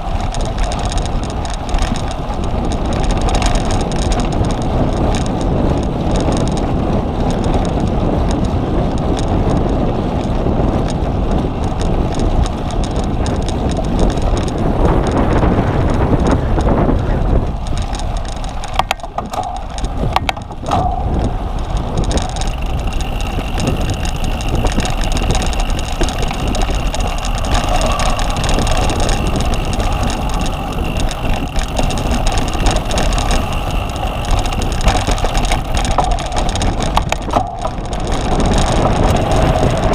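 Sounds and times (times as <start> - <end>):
bike rattling over rough ground: 0.0 - 39.9.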